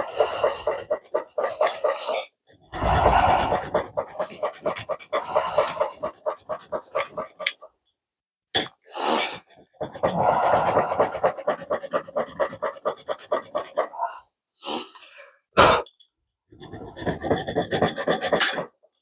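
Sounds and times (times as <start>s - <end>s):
file rasping on metal: 0.0s - 2.2s, 2.8s - 7.7s, 9.8s - 14.1s, 16.6s - 18.8s.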